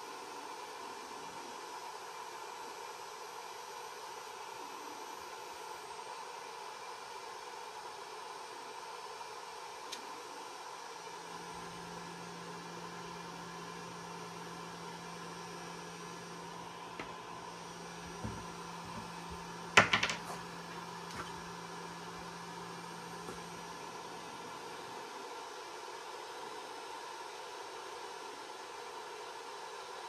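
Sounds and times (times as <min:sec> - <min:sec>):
small electric motor humming: 0:11.2 - 0:25.1.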